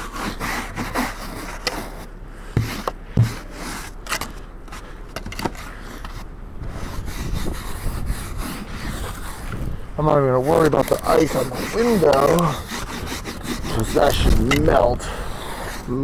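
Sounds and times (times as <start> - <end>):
snow brushed and scraped off car: 0.0 - 16.0
dull thumps: 2.5 - 5.6.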